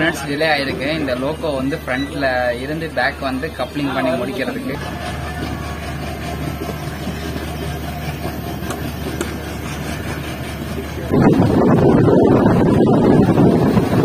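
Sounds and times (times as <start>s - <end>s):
train rumble and hum: 2.6s - 14.0s
wind buffeting microphone: 4.8s - 14.0s.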